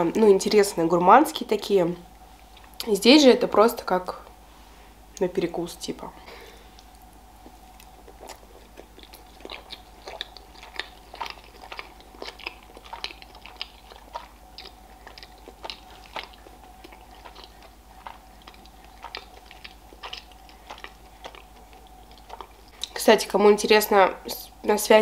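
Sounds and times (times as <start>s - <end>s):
person chewing food: 2.4s - 2.8s, 6.3s - 23.0s.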